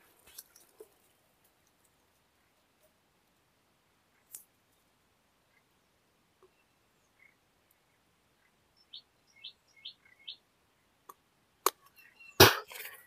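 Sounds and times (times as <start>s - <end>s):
small bird chirping: 4.0s - 12.4s.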